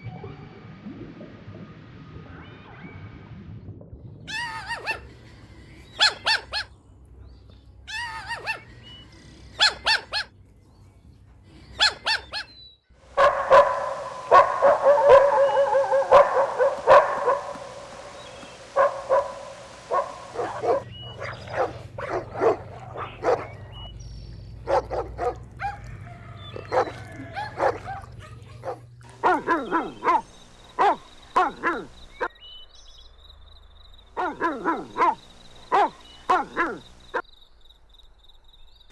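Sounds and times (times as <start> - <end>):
dogs barking and yipping: 4.3 - 6.8, 7.9 - 10.5, 11.5 - 32.4, 34.1 - 37.2.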